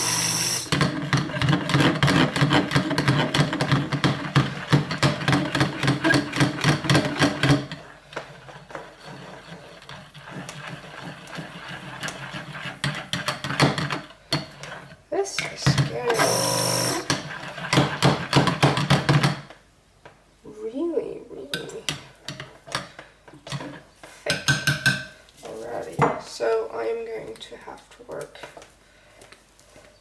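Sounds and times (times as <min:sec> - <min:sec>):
stick blender pulsing: 0:00.0 - 0:13.8, 0:16.1 - 0:18.5.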